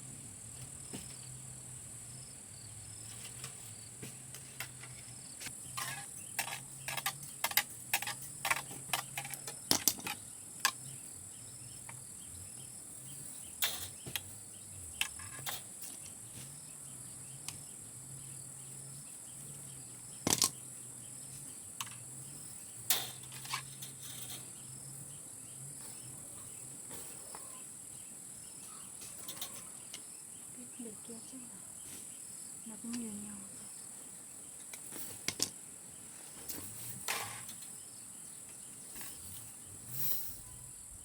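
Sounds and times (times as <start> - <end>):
crickets droning: 0.0 - 41.0
sharp clicks and knocks: 3.2 - 10.9, 20.2 - 20.6, 34.6 - 35.6.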